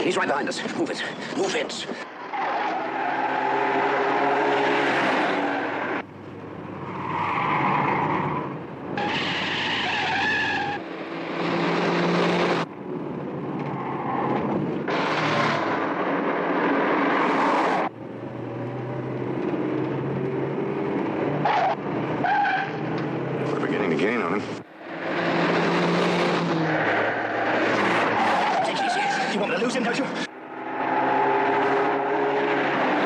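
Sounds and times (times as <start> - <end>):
car engines running hard: 1.1 - 33.0
tyres squealing: 7.0 - 10.8, 26.6 - 31.8.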